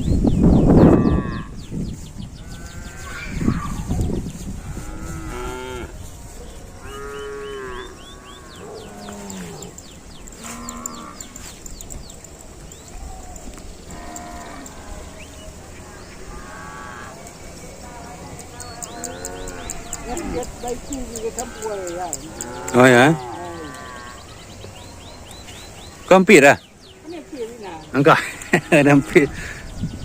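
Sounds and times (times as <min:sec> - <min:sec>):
cattle mooing: 0:04.6 - 0:06.0, 0:06.8 - 0:11.4, 0:13.9 - 0:15.2, 0:15.9 - 0:17.2, 0:17.9 - 0:24.2.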